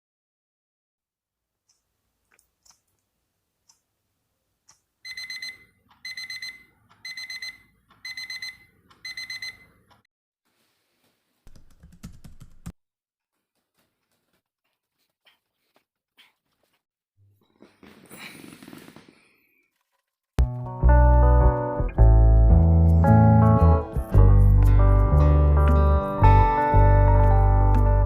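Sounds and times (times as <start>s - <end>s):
alarm clock beeping: 5.0s - 9.8s
rustling: 13.3s - 16.9s.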